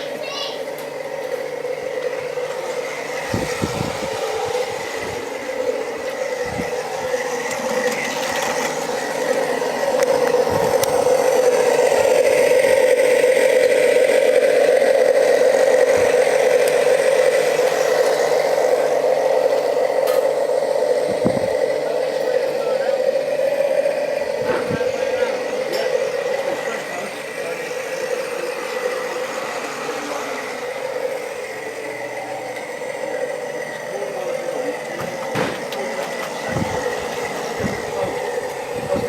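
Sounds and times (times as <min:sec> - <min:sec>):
model train rattling hum: 0:00.0 - 0:39.0
track clicks: 0:00.0 - 0:39.0.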